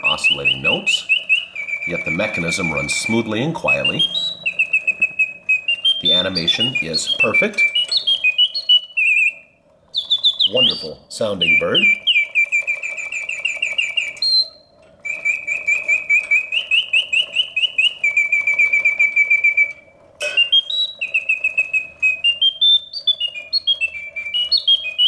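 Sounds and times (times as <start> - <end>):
mechanical singing bird whistle: 0.0 - 25.0.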